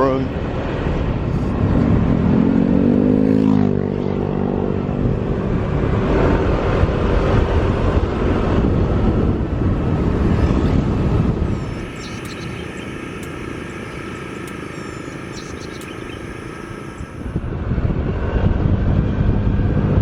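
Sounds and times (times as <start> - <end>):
wind and road noise: 0.0 - 20.0
motorcycle engine: 11.2 - 17.5.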